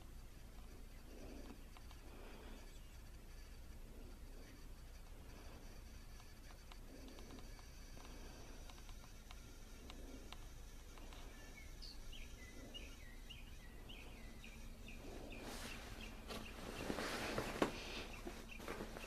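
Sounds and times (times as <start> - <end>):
small bird chirping: 0.0 - 5.1, 5.7 - 19.0
rustling noise: 15.0 - 19.0.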